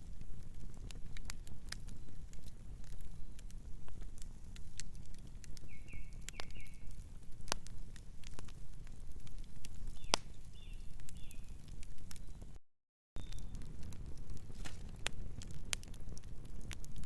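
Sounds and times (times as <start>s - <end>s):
wood fire crackling and popping: 0.0s - 12.6s, 13.2s - 17.0s
bird chirping: 5.7s - 6.9s, 10.0s - 11.6s, 13.2s - 13.5s.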